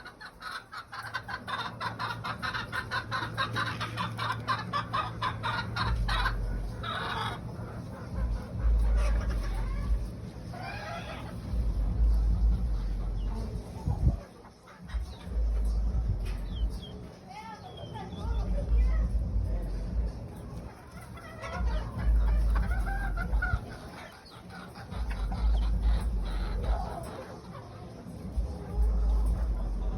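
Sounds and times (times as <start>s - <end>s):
game birds clucking: 0.0s - 18.7s, 20.1s - 29.9s
low rumble: 5.7s - 6.9s, 7.5s - 10.4s, 11.3s - 14.2s, 15.0s - 16.8s, 18.2s - 20.4s, 21.6s - 23.8s, 24.9s - 26.9s, 28.4s - 29.9s.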